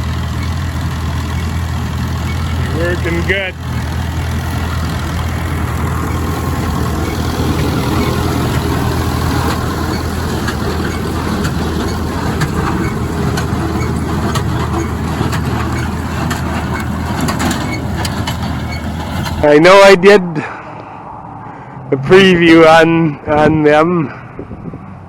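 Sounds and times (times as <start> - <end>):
large engine running: 0.0 - 19.6.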